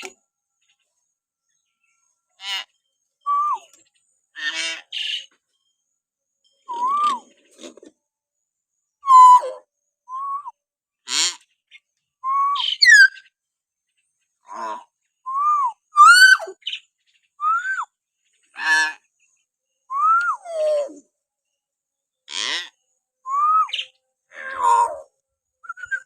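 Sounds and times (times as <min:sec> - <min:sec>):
harsh rasping bird calls: 0:02.4 - 0:05.4, 0:11.0 - 0:11.8, 0:12.6 - 0:13.3, 0:15.7 - 0:21.0, 0:22.2 - 0:26.0
myna whistling calls: 0:06.7 - 0:07.3, 0:09.0 - 0:10.6, 0:12.2 - 0:13.3, 0:15.3 - 0:16.8, 0:17.4 - 0:17.9, 0:23.3 - 0:26.0.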